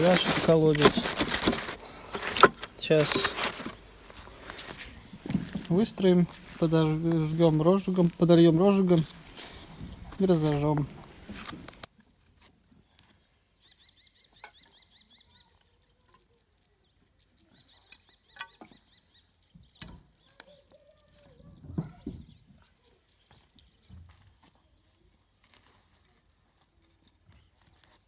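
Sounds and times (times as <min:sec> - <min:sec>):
faint bird song: 0:12.7 - 0:28.0.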